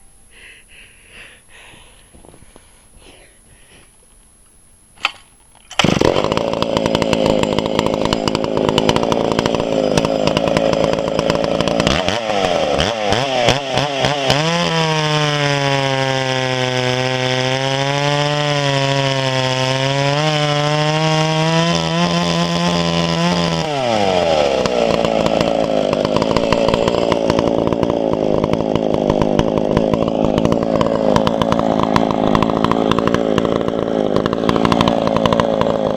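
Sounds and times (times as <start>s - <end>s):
chainsaw engine starting and revving: 5.1s - 35.9s.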